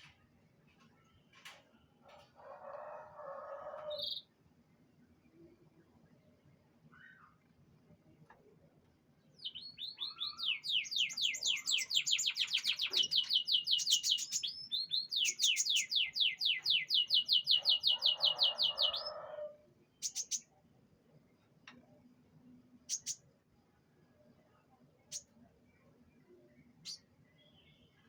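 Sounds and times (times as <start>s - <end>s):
canary singing in high trills: 9.4s - 19.4s, 20.0s - 20.5s.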